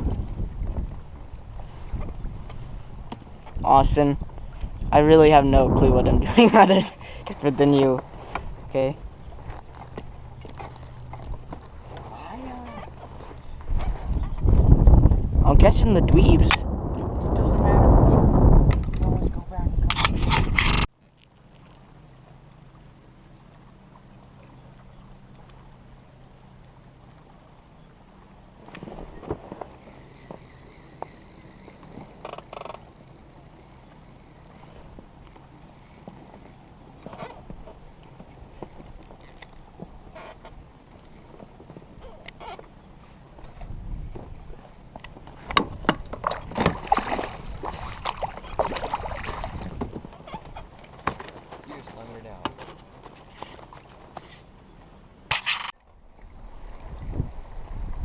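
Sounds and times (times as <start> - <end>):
boat motor humming: 0.0 - 58.0
light knocks against boat: 43.4 - 47.1, 49.6 - 51.8, 52.4 - 54.2.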